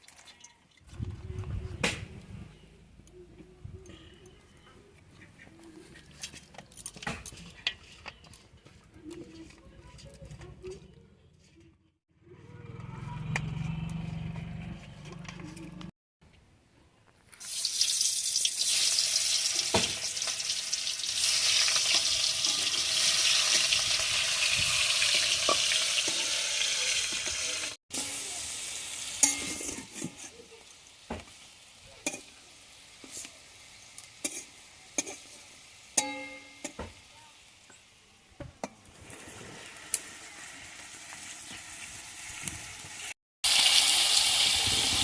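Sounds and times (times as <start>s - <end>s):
food sizzling in hot oil: 17.3s - 37.8s, 38.9s - 45.0s.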